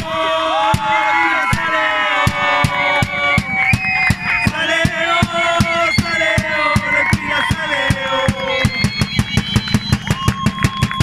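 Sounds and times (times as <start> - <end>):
crowd singing a chant: 0.0 - 8.7
drum beating steadily: 0.0 - 11.0.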